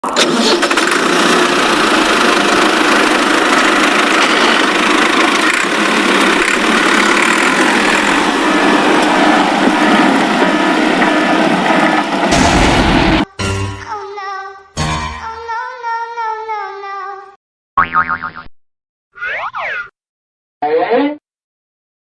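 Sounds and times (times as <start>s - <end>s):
vehicle engine running: 0.2s - 13.2s.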